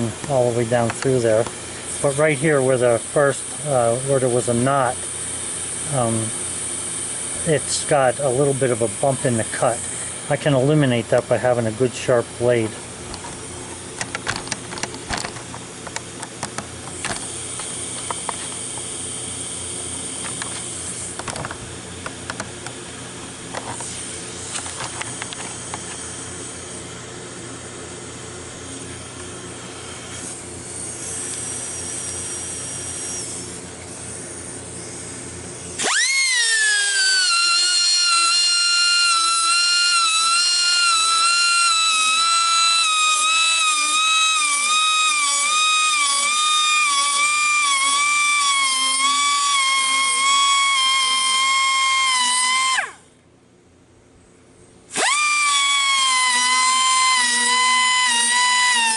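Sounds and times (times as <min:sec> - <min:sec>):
air tool hissing: 0:01.1 - 0:10.6, 0:35.8 - 0:53.0, 0:54.9 - 0:58.9.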